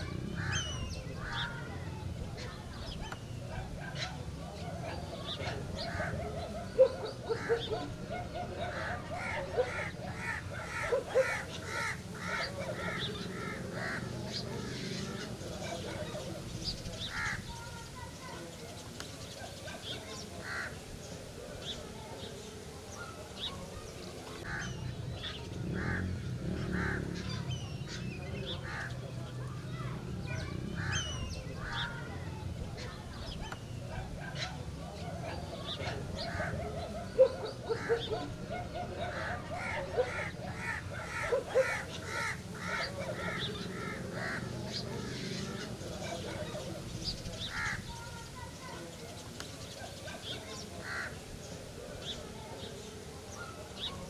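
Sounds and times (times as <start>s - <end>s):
birds honking: 0.0s - 16.1s, 23.7s - 48.7s
birds chirping: 0.0s - 54.0s
crow cawing: 8.6s - 15.0s, 24.4s - 24.8s, 25.7s - 28.0s, 28.6s - 28.9s, 37.6s - 45.4s.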